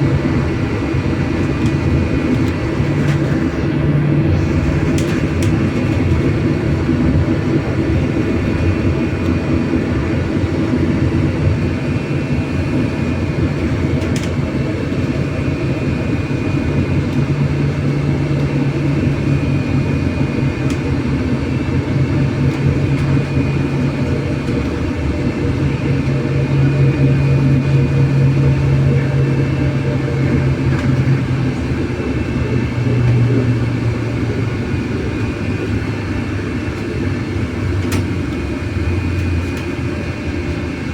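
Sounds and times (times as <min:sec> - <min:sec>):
road and tyre rumble: 0:00.0 - 0:40.9.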